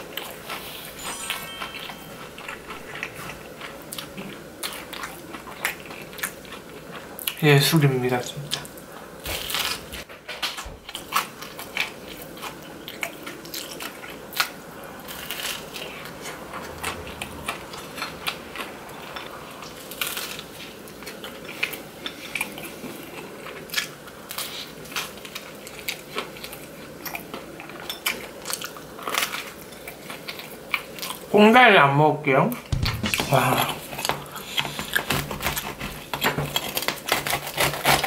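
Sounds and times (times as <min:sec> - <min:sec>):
biting and chewing crisp crust: 0:08.5 - 0:31.3, 0:32.7 - 0:38.0.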